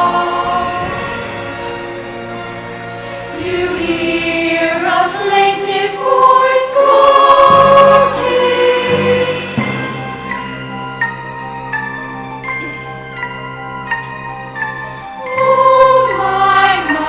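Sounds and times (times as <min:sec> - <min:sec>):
girls' choir singing: 0:00.0 - 0:11.1, 0:15.2 - 0:17.0
sustained accompaniment: 0:00.0 - 0:17.0.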